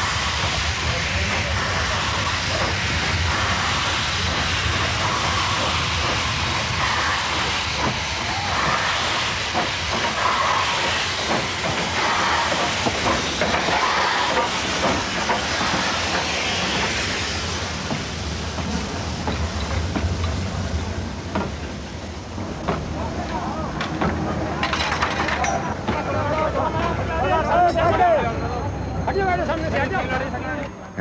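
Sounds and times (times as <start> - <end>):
train passing: 0.0 - 31.0
wheels clacking over rail joints: 22.4 - 27.0.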